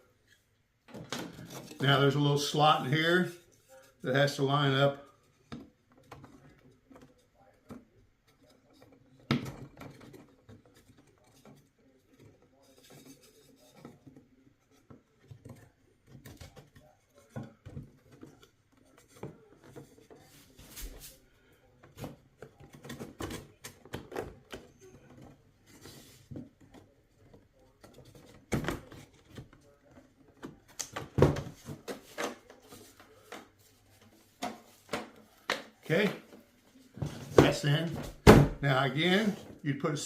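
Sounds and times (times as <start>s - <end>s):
wooden frame parts knocking and tapping: 0.8s - 2.0s, 4.6s - 20.8s, 21.8s - 36.4s.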